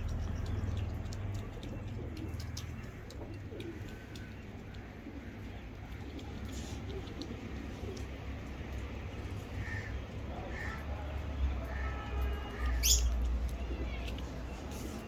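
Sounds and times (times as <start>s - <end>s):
birds chirping: 0.0s - 6.2s, 8.0s - 13.9s.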